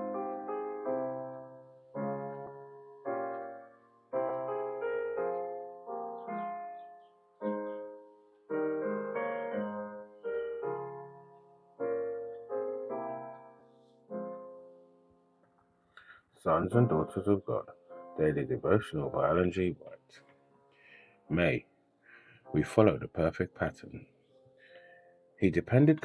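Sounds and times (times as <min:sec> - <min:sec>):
slow piano chords: 0:00.0 - 0:26.0.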